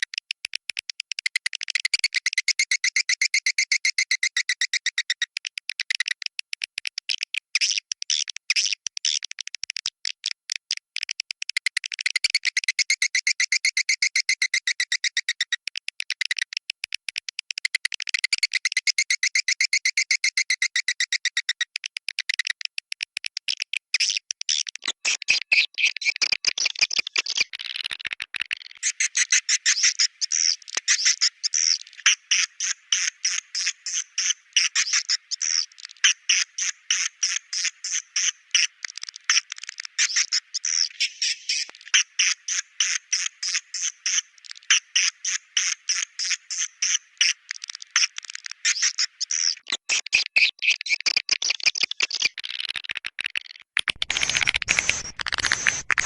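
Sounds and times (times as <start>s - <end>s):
swiftlets twittering: 54.0s - 56.0s.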